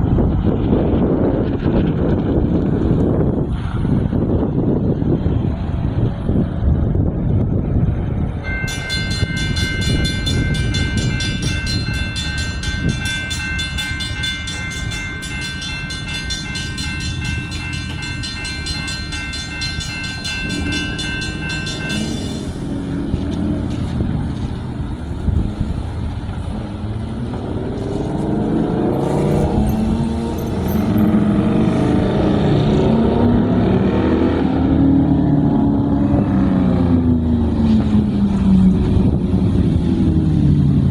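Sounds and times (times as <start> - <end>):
traffic rumble: 0.0 - 40.9
railroad crossing bell ringing: 8.4 - 23.3, 28.9 - 33.2
vehicle engine pulling away: 25.9 - 38.8.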